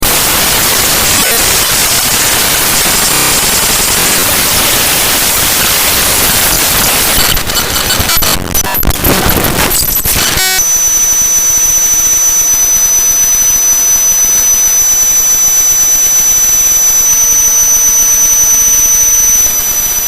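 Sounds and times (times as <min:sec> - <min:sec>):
loud dense static: 0:00.0 - 0:20.0
brief buzzy tone: 0:07.0 - 0:20.0.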